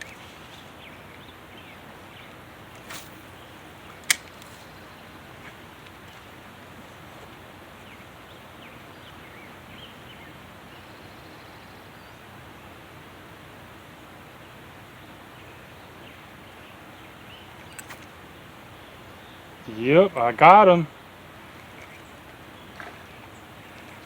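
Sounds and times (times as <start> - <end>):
creek hissing: 0.0 - 24.0
fishing rod swishing: 2.7 - 3.4.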